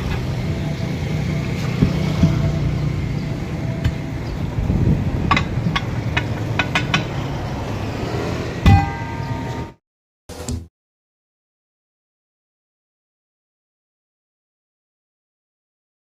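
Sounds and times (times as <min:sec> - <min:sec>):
steady low rumble: 0:00.0 - 0:07.7.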